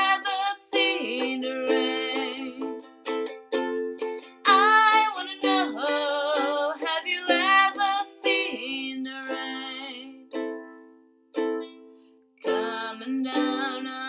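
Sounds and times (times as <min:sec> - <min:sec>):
person singing: 0:00.0 - 0:03.4, 0:04.4 - 0:10.5, 0:12.4 - 0:14.0
ukulele strumming: 0:00.0 - 0:14.0.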